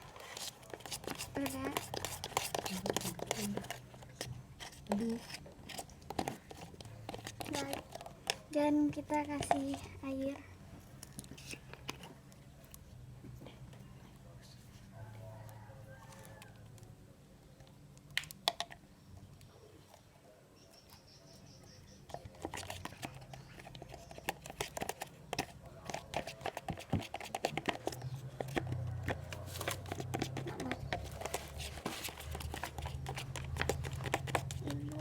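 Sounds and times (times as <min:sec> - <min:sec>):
spoon stirring in plastic cup: 0:00.0 - 0:12.5, 0:22.0 - 0:35.0.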